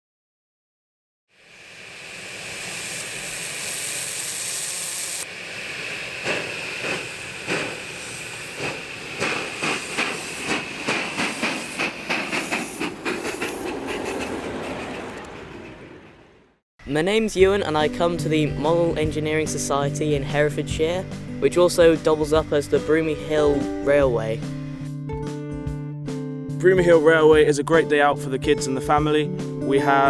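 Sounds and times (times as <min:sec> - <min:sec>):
steam hissing: 0:01.4 - 0:15.0, 0:18.6 - 0:24.8
steam train chuffing beats: 0:01.8 - 0:15.8, 0:17.1 - 0:25.8, 0:26.6 - 0:30.0.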